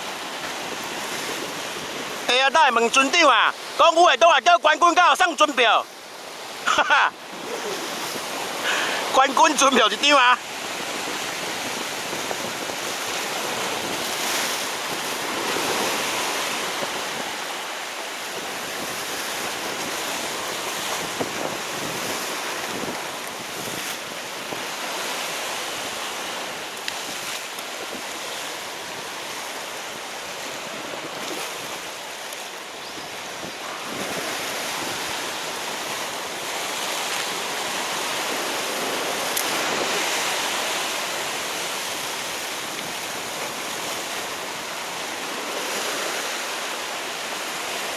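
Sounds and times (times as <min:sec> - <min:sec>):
wind on microphone: 0:00.0 - 0:02.3, 0:10.4 - 0:17.6, 0:18.2 - 0:32.1, 0:32.7 - 0:46.4
sea surf on rocky shore: 0:00.0 - 0:47.9.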